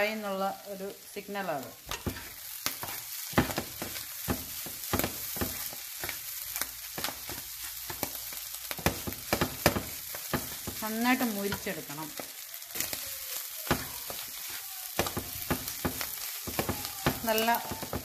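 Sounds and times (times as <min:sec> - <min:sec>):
clam meat sizzling in oil: 0:00.0 - 0:18.0
wooden spatula scraping pan: 0:01.9 - 0:08.2.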